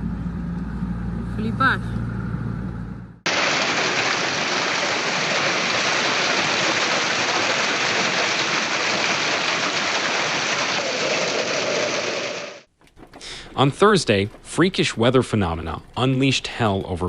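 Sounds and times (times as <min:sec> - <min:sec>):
heavy downpour rushing: 0:03.3 - 0:13.9.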